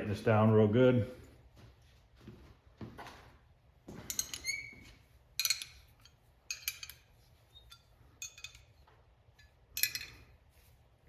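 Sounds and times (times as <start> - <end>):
metal tool clinking and scraping: 3.9 - 10.8.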